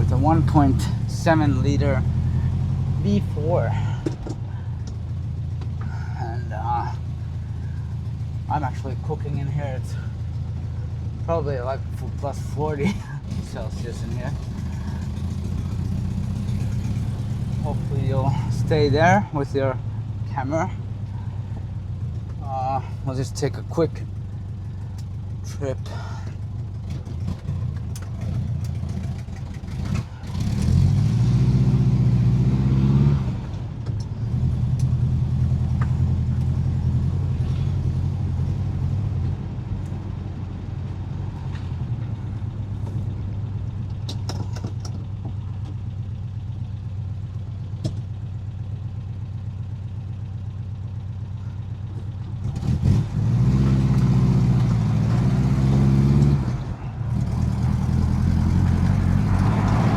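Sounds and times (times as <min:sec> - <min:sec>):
car engine revving: 0:00.0 - 0:40.0, 0:52.0 - 0:59.9.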